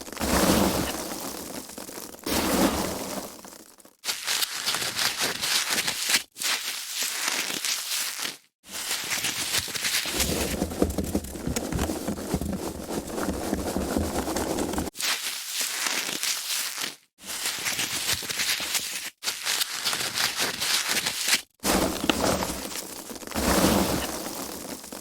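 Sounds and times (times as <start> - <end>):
foam packaging crackling: 4.1 - 23.4.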